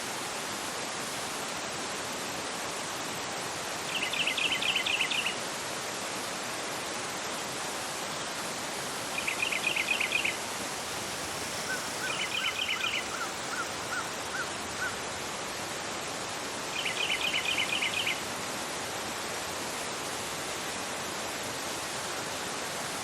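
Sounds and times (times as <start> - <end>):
river rushing over rocks: 0.0 - 23.0
birds chirping: 11.6 - 14.2.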